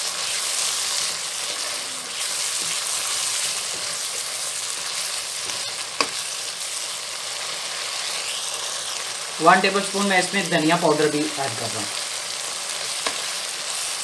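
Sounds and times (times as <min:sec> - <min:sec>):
spatula scraping wok: 0:00.0 - 0:09.3
masala sizzling in oil: 0:00.0 - 0:14.0.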